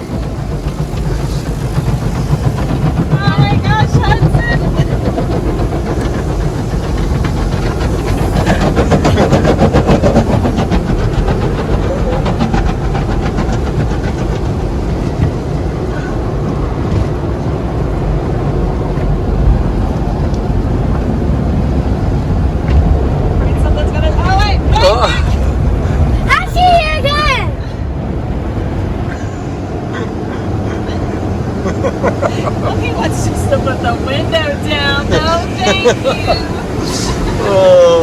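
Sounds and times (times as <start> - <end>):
rapid clattering: 0.0 - 27.3, 30.3 - 37.5
car wash machinery rumble: 0.0 - 38.0.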